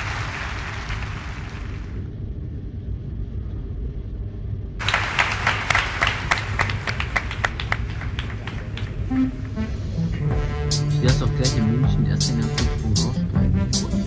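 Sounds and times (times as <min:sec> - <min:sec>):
applause: 0:00.0 - 0:02.0, 0:04.8 - 0:09.1
low rumble: 0:00.1 - 0:12.2
rapid sharp handclaps: 0:04.8 - 0:09.1.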